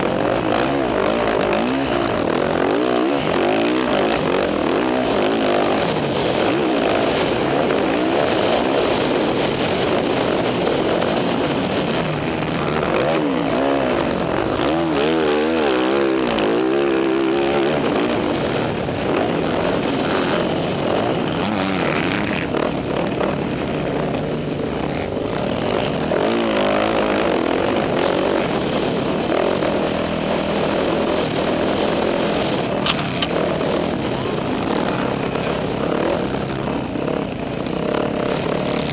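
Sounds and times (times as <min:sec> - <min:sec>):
dirt bike engine revving: 0:00.0 - 0:38.9
steady rushing noise: 0:00.0 - 0:38.9
sharp click: 0:32.8 - 0:33.4.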